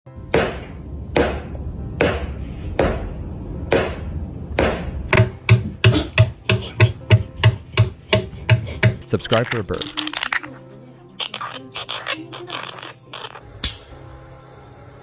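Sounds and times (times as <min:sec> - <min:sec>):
even beat of thumps: 0:04.6 - 0:09.0
sharp knocks: 0:04.6 - 0:09.0.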